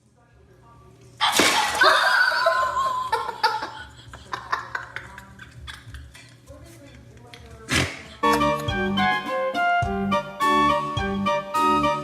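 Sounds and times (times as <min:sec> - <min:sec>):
person laughing: 0:01.7 - 0:06.4, 0:08.1 - 0:08.9.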